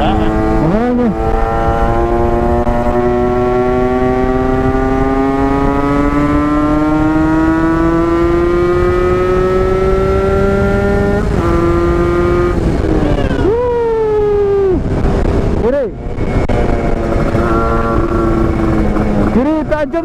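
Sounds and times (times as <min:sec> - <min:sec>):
two-stroke motorcycle engine accelerating: 0:00.0 - 0:13.6, 0:14.2 - 0:20.0
wind rush: 0:00.0 - 0:20.0.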